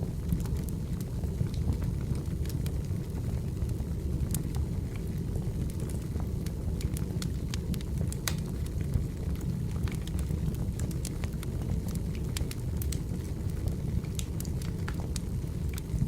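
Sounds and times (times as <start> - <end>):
firewood crackling and popping: 0.0 - 16.0
low rumble of flames: 0.0 - 16.0.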